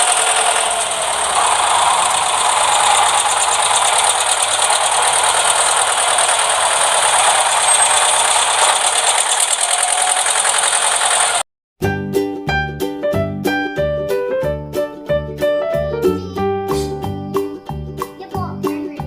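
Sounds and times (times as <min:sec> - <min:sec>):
toy electric motor and gears rattling: 0:00.0 - 0:11.4.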